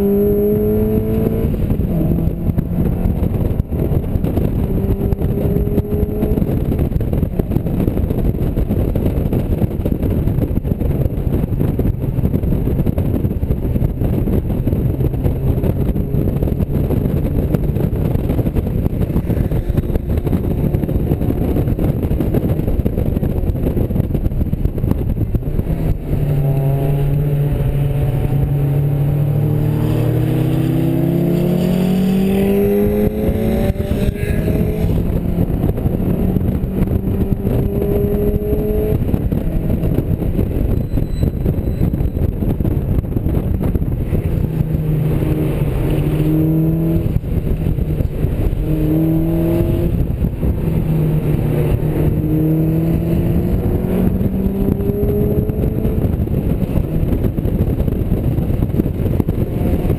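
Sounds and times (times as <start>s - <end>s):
car engine accelerating: 0.0s - 40.8s, 41.4s - 59.9s
wind and road noise: 0.0s - 59.9s.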